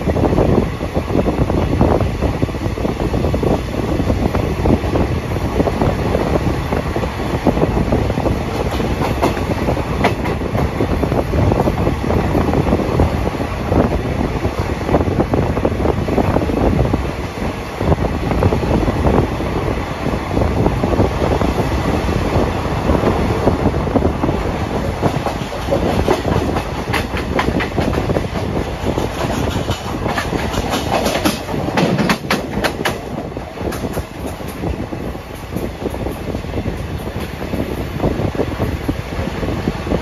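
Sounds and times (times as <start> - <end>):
train wheels rumbling on track: 0.0 - 40.0
wheels clicking over rail joints: 24.2 - 36.3.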